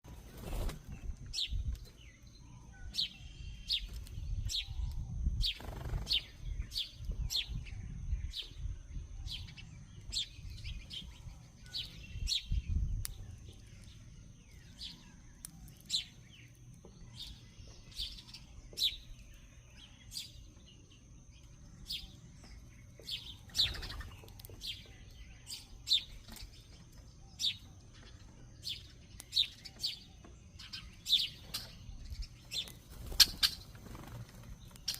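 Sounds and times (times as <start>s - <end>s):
bird chipping: 9.3s - 34.9s.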